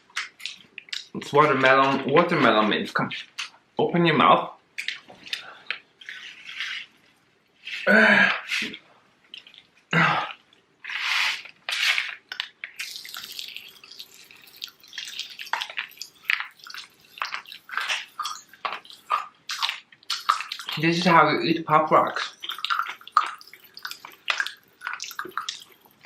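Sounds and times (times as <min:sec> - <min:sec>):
popping candy crackling: 0:11.7 - 0:26.0.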